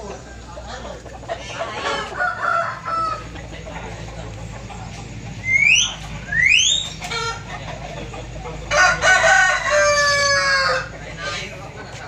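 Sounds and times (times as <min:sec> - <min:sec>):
rooster squawks: 0:01.3 - 0:03.3
rooster crowing: 0:01.4 - 0:03.4, 0:08.7 - 0:11.4.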